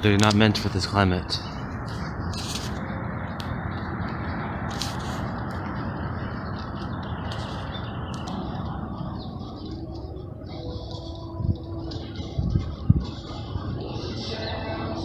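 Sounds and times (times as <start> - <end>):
steady rushing outdoor noise: 0.0 - 15.0
small birds chirping: 5.7 - 15.0.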